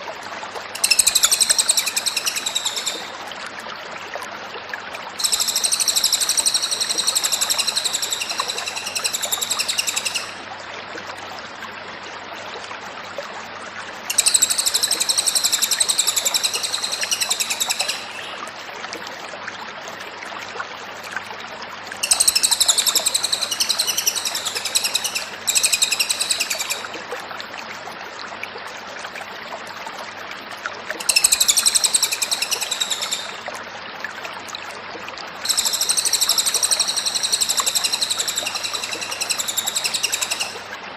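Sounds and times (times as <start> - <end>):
faint steady hum: 0.0 - 19.1
songbird singing rapid notes: 0.8 - 3.1, 5.2 - 10.4, 14.1 - 18.4, 22.0 - 26.8, 35.4 - 40.6.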